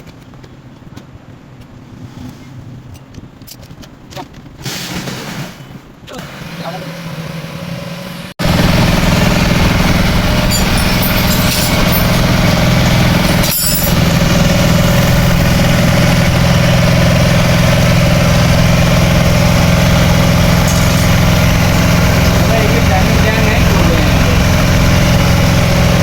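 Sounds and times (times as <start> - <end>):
motorcycle engine idling: 8.4 - 26.0.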